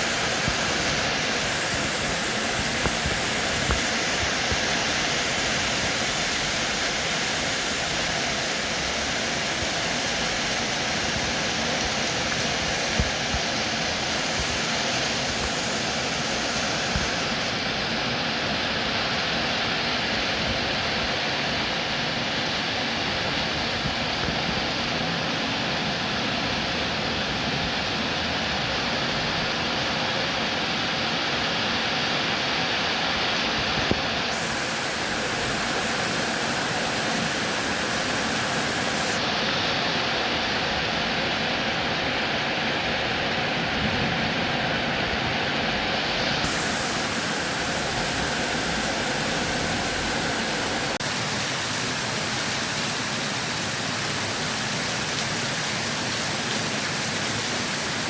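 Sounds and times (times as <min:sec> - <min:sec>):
heavy rain hissing: 0:00.0 - 0:18.4, 0:31.0 - 0:42.9, 0:43.6 - 0:58.0.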